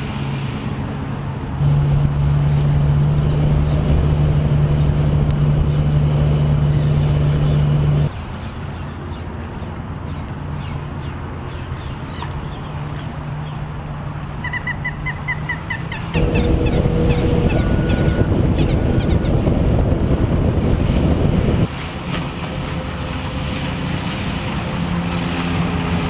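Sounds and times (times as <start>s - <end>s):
water: 0.0s - 26.0s
outboard motor drone: 0.1s - 8.2s, 15.9s - 26.0s.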